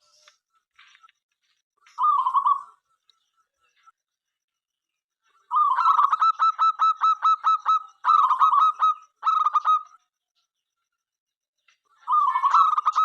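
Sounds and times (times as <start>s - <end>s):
dove cooing: 5.5s - 9.9s, 12.1s - 13.0s.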